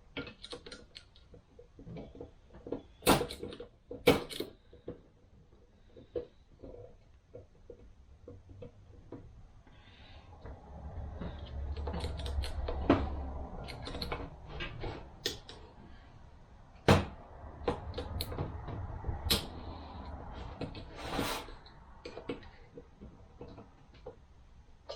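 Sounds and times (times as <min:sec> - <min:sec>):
metal parts clicking and knocking: 0:00.1 - 0:05.2, 0:11.3 - 0:15.7.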